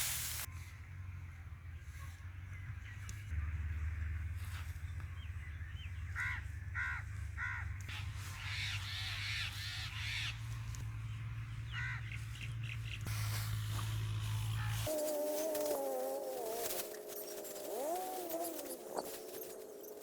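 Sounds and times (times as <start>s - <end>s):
hissing noise: 0.0s - 0.5s, 13.1s - 20.0s
harsh bird calls: 5.2s - 20.0s.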